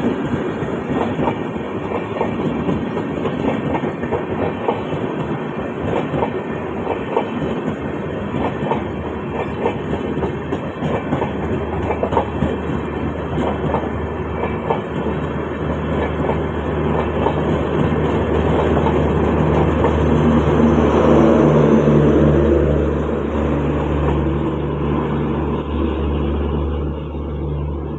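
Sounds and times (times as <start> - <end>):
train wheels clicking: 0.0 - 21.3.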